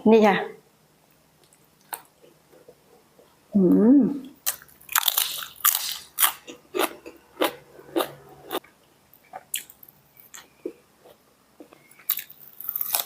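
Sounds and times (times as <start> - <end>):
person chewing crunchy food: 4.4 - 13.0.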